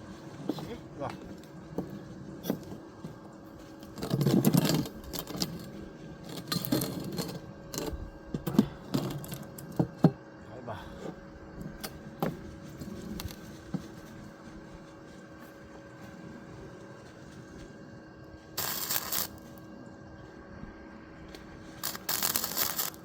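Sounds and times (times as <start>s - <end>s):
faint steady hum: 0.0s - 23.0s
knocks and clatter of materials: 0.4s - 10.2s.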